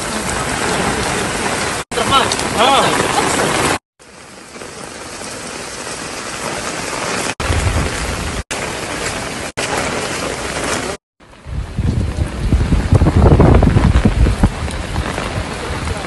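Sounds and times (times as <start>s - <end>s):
heavy rain on pavement: 0.0s - 16.0s
deep rumble: 11.4s - 16.0s.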